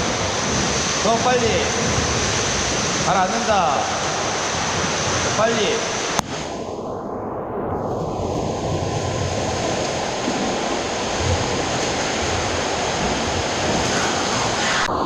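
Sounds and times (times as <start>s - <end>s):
swimmer splashing in pool water: 8.3s - 15.0s.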